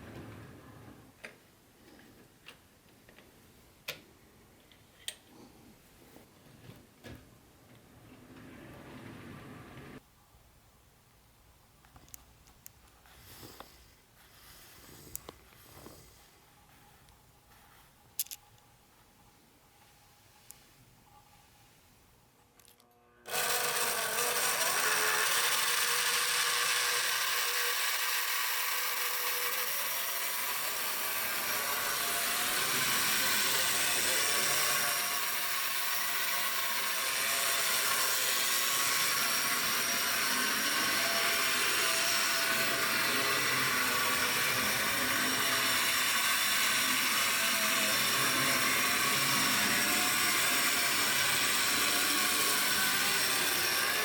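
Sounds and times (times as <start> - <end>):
small electric motor whirring: 23.2 - 54.0.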